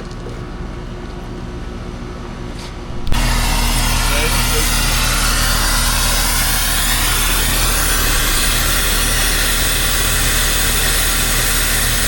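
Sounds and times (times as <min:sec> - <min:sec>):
steady low hum: 0:00.0 - 0:12.0
brazing torch hissing: 0:02.9 - 0:12.0.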